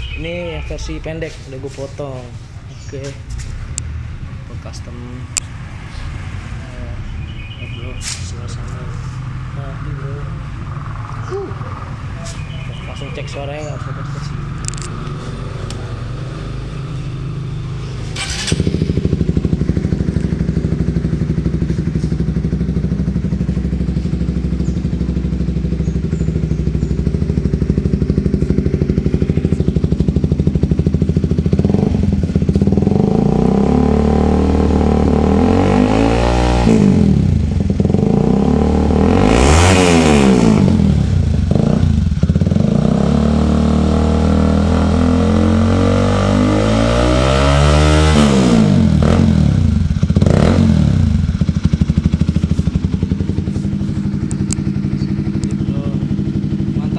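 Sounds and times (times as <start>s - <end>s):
motorcycle engine idling and revving: 0.0s - 56.9s.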